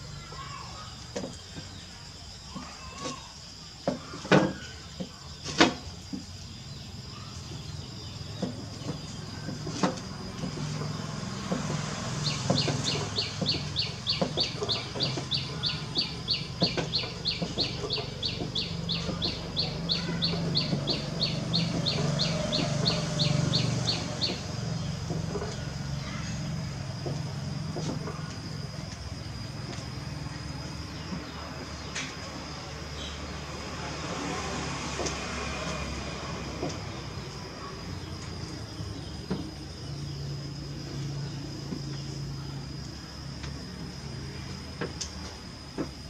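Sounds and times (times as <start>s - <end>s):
bird chirping rapidly: 12.1s - 25.1s.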